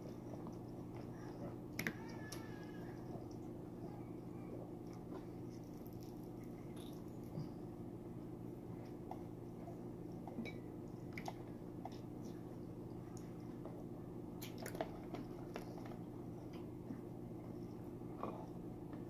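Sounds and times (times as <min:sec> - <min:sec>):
steady low hum: 0:00.0 - 0:19.0
person chewing: 0:04.9 - 0:07.6.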